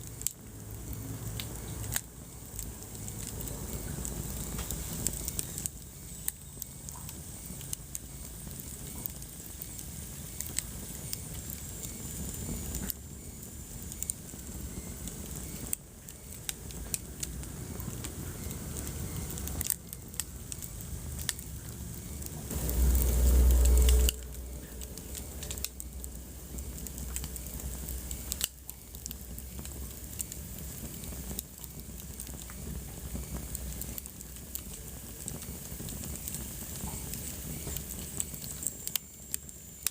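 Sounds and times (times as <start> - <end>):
wood fire crackling: 0.0 - 39.9
deep low rumble: 21.0 - 28.4.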